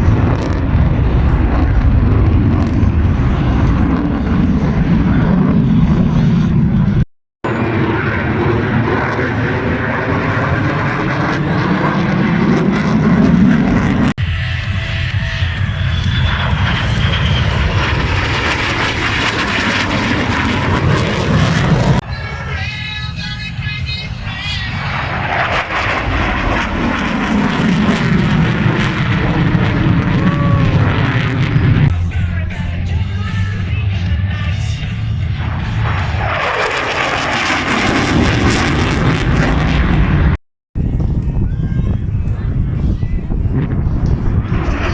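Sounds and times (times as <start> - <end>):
airplane engine roar: 0.0 - 44.9
music: 31.9 - 35.8.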